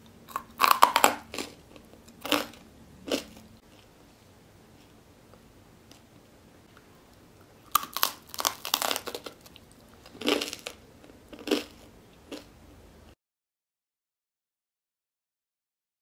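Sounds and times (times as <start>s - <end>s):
crunching bread crust: 0.3s - 3.9s, 7.6s - 12.5s.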